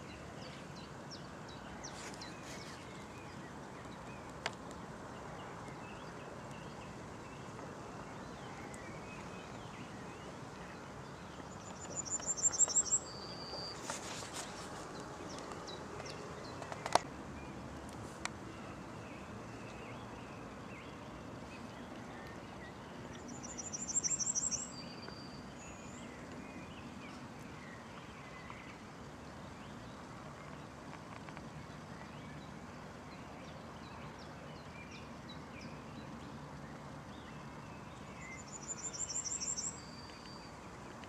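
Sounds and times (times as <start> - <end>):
songbird high trill: 11.7 - 13.9, 23.3 - 25.1.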